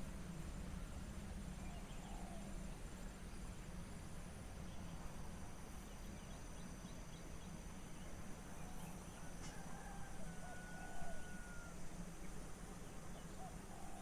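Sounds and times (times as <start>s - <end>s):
insect hum: 0.0s - 14.0s
faint bird calls: 8.6s - 11.8s, 13.1s - 14.0s.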